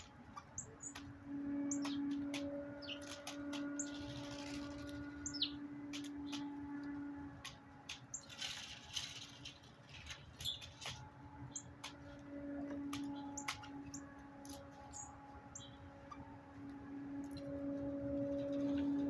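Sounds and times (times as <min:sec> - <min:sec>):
sharp clicks and ticks: 0:00.0 - 0:09.1
birds chirping: 0:00.0 - 0:19.0
steady low hum: 0:00.0 - 0:19.0.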